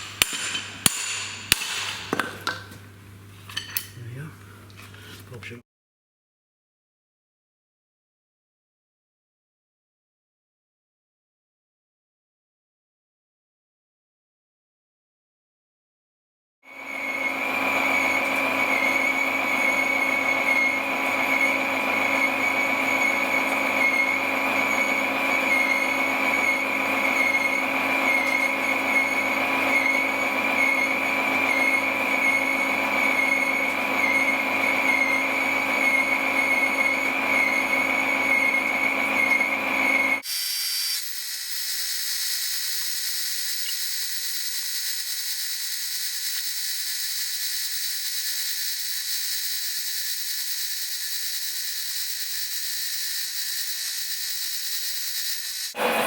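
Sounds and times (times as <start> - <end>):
power tool high-pitched whine: 0.0 - 2.6, 16.7 - 56.0
thin high-pitched machine sound: 0.0 - 2.6, 16.7 - 56.0.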